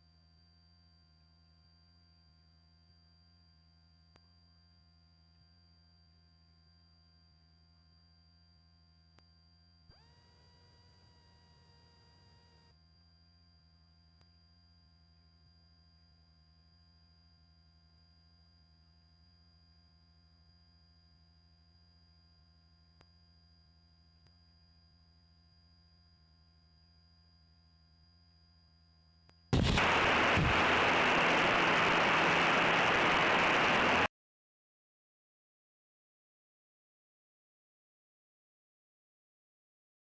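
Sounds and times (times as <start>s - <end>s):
loud rushing noise: 29.6s - 34.1s.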